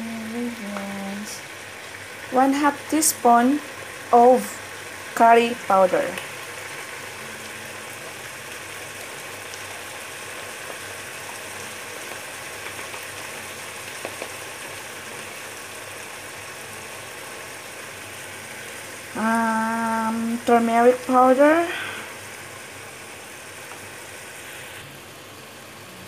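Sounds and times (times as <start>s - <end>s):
chicken frying in a pot: 0.0s - 26.0s.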